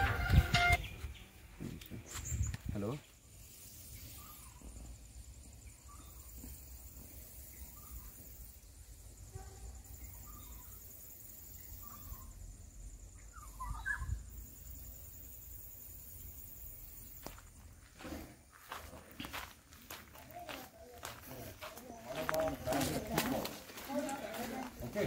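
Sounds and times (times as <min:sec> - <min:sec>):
bird call sliding in pitch: 0:00.0 - 0:01.0.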